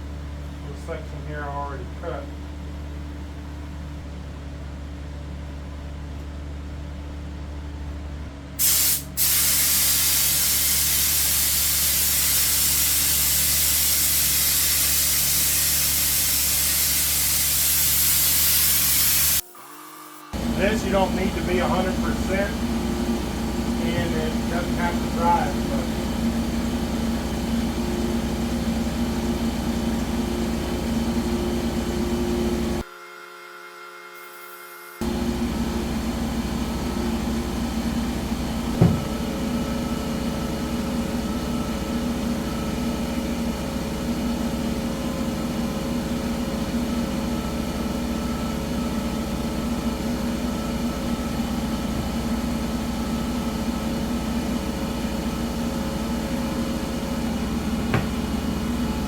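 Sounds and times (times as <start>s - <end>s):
machine hum with held tones: 19.4s - 59.0s
sharp knock: 38.8s - 39.2s, 57.9s - 58.2s.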